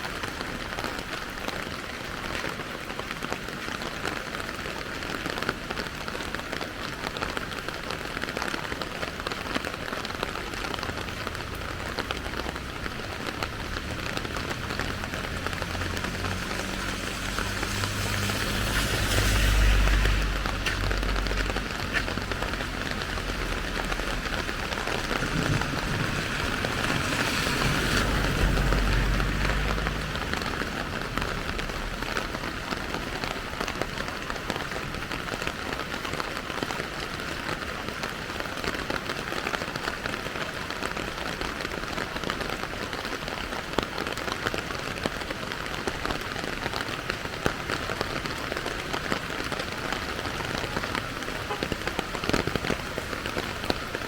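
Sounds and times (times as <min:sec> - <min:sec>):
steady rain falling: 0:00.0 - 0:54.0
low rumble: 0:13.5 - 0:32.0.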